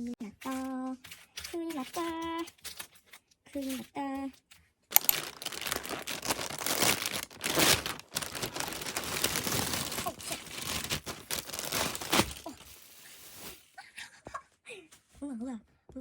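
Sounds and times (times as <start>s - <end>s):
plastic packaging crinkling: 4.9s - 13.8s.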